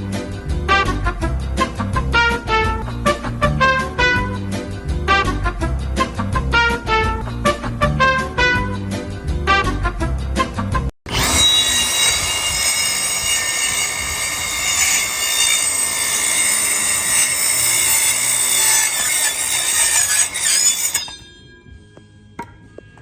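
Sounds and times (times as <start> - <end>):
power tool cutting screech: 11.1 - 21.3.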